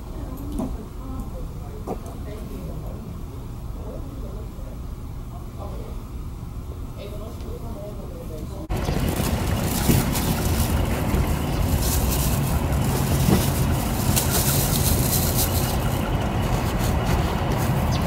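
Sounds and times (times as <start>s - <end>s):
wind buffeting microphone: 8.7s - 18.0s.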